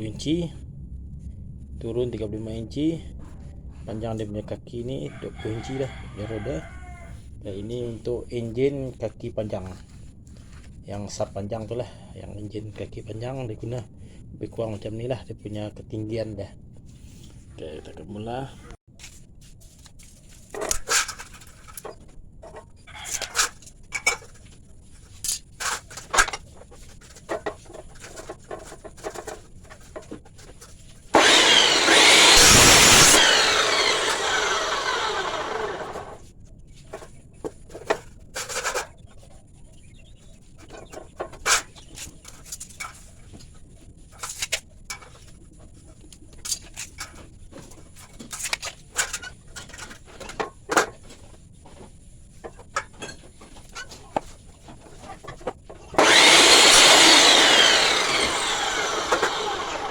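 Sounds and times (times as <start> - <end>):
power cutting tool running: 31.2 - 36.2, 56.0 - 59.9.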